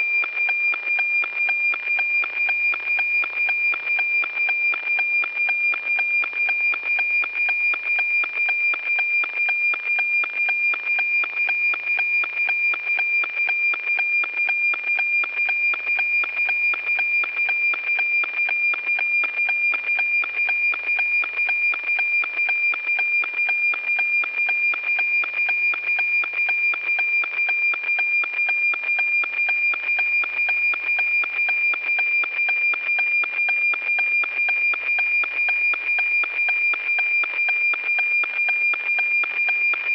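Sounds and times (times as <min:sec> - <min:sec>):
steady high tone with ticking: 0:00.0 - 0:39.9.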